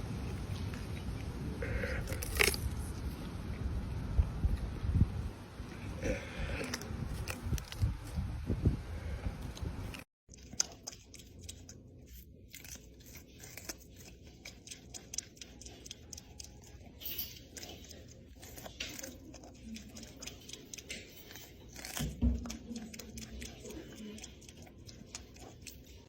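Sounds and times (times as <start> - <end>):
animal chewing crunchy food: 0.0 - 4.8, 5.6 - 8.3, 9.1 - 26.0
low rumbling noise: 0.0 - 10.0.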